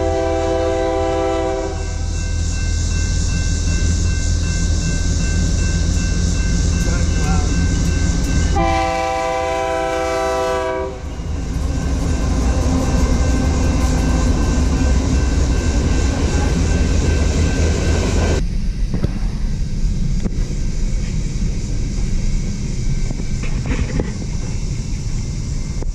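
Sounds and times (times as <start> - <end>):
locomotive horn chord: 0.0 - 2.2, 8.5 - 14.8
low train rumble: 0.0 - 25.9
train wheel and rail noise: 0.0 - 25.9.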